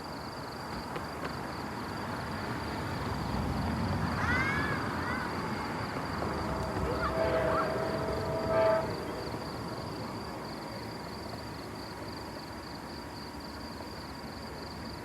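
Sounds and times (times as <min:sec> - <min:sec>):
passing train rumble: 0:00.3 - 0:15.0
train horn chord: 0:06.2 - 0:09.9.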